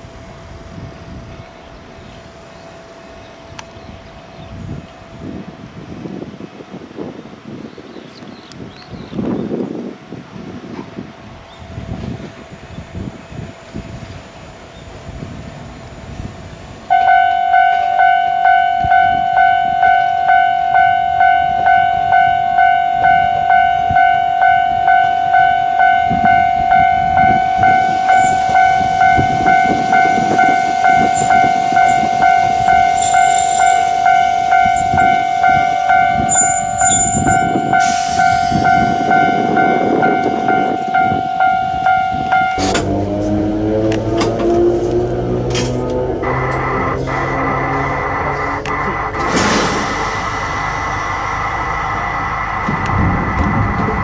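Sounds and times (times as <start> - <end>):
train rumbling by: 8.9 - 54.0
level crossing alarm ringing: 15.6 - 42.8.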